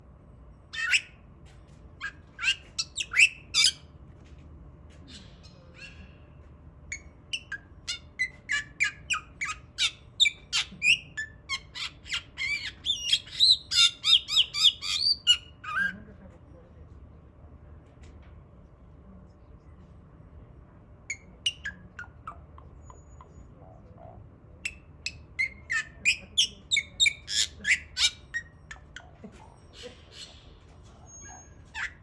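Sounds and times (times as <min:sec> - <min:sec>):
bird squawking calls: 0:00.7 - 0:01.1, 0:06.9 - 0:15.9, 0:31.1 - 0:32.0.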